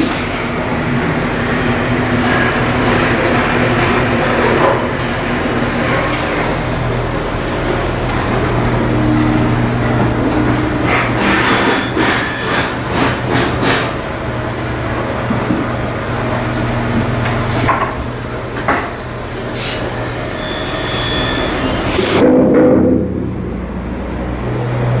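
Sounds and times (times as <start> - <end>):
machinery droning: 0.0 - 25.0
sharp knocks and clatters: 10.0 - 14.0.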